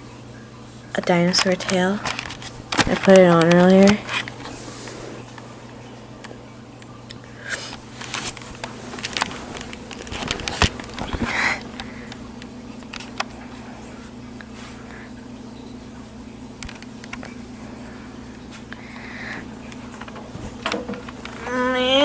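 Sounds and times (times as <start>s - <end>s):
steady low hum: 0.0s - 22.0s
small clicks and rustles: 6.2s - 13.5s.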